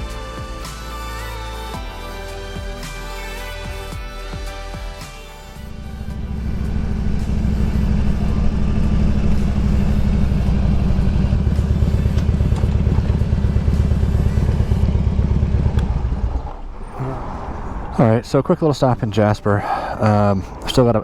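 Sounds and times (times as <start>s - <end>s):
motorcycle engine running: 5.6s - 17.2s.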